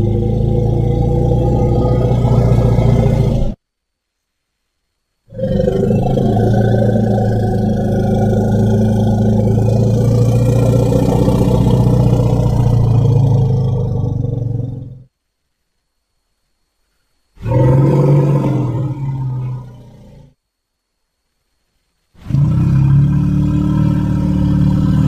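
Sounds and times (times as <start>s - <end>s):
elephant low call: 0.0s - 3.6s, 5.3s - 15.1s, 17.4s - 20.4s, 22.2s - 25.0s.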